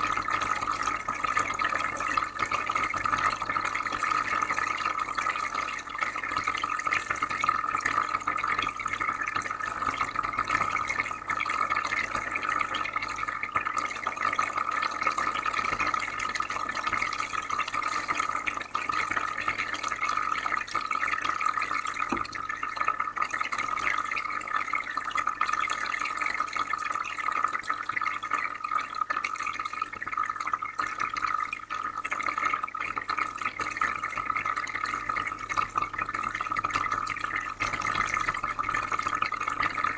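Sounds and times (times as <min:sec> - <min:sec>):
aquarium filter bubbling water: 0:00.0 - 0:39.9.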